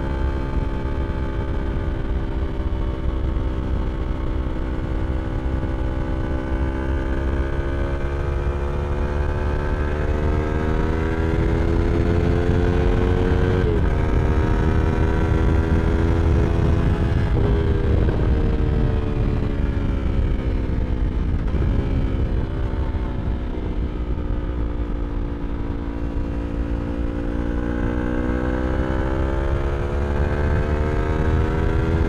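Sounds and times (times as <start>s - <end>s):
motorcycle engine accelerating: 0.0s - 32.0s
wind rumble: 0.0s - 32.0s.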